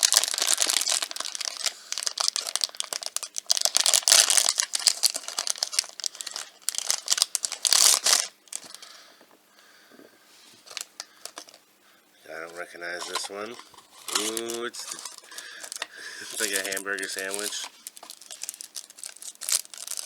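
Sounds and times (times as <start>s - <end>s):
plastic wrapper tearing and crinkling: 0.0s - 8.8s, 10.6s - 11.6s, 12.5s - 20.0s.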